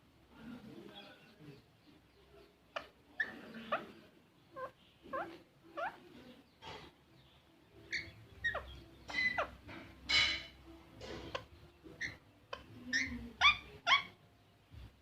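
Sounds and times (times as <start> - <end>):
parrot squeaky calls and whistles: 2.8 - 3.9, 4.5 - 6.1, 7.8 - 10.6, 11.2 - 14.2.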